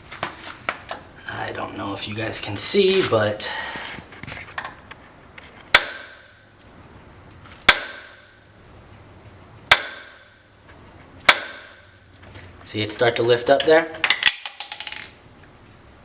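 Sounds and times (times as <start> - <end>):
ratchet hammering metal stud: 5.7 - 6.3, 7.7 - 8.3, 9.7 - 10.3, 11.3 - 11.9.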